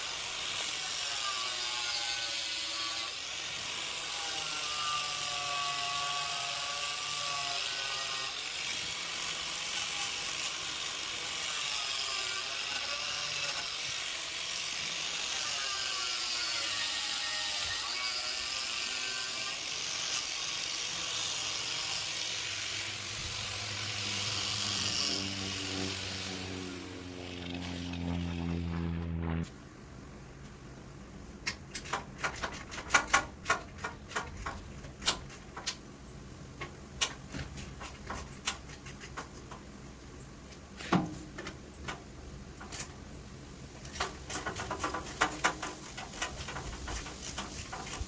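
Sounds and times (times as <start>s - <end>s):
power tool whirring: 0.1s - 29.5s
low motor hum: 22.9s - 29.6s.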